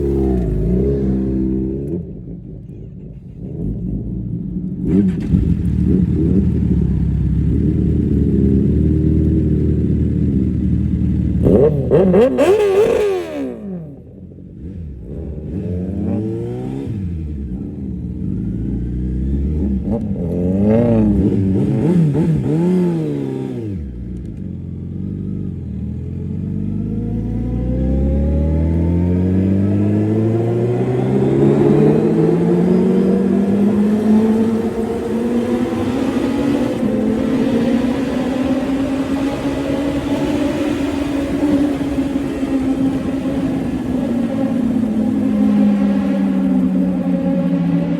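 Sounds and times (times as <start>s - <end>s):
motorcycle passing by: 0.0s - 1.9s, 11.4s - 24.1s, 25.0s - 47.9s
motorcycle engines revving: 0.0s - 47.9s.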